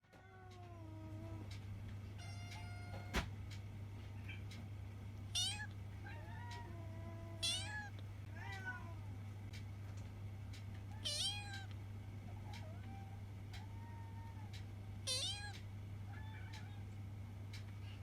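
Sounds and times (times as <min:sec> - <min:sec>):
steady low hum: 0:00.0 - 0:18.0
kitten meowing: 0:05.3 - 0:08.9, 0:11.0 - 0:11.7, 0:15.1 - 0:15.6.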